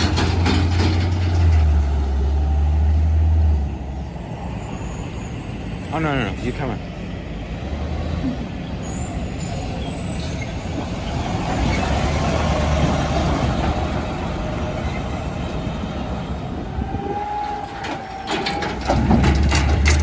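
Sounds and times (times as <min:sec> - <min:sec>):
garbage truck diesel engine: 0:00.0 - 0:20.0
clicking and clattering: 0:17.8 - 0:20.0.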